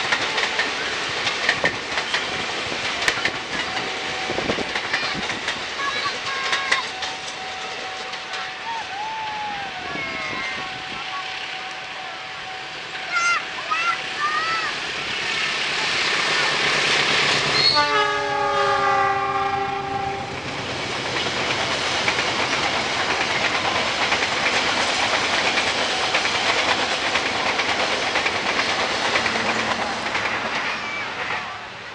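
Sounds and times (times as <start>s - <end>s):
train wheels rumbling on rails: 0.0s - 31.9s
train horn: 7.0s - 13.1s, 17.6s - 20.4s.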